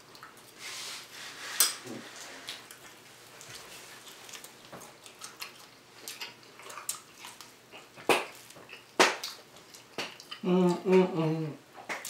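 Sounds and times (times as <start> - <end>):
crunchy chewing: 2.1 - 10.4.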